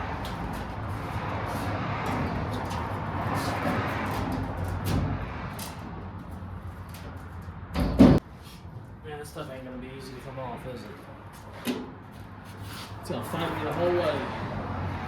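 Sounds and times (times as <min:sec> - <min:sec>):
loud knock: 0:07.8 - 0:08.2.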